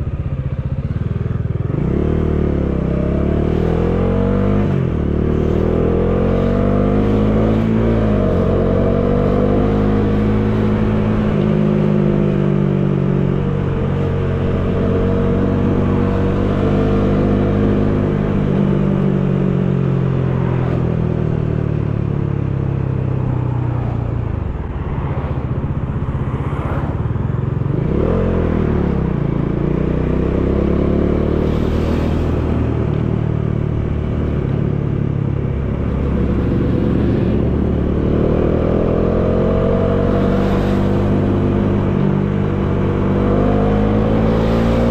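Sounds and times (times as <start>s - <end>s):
motorcycle engine accelerating: 0.0s - 44.9s
wind rushing: 22.5s - 29.0s, 31.2s - 44.9s.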